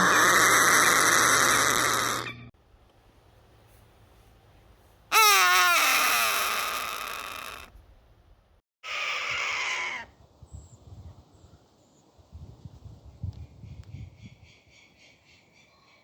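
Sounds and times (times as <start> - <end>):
bird of prey screaming: 5.1 - 7.7, 8.8 - 10.2.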